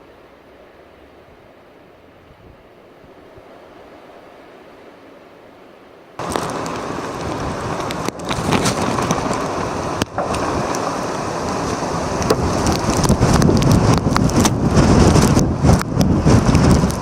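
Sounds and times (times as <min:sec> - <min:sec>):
sharp ticks of wet snow: 0:06.2 - 0:17.0
strong wind on microphone: 0:06.2 - 0:17.0.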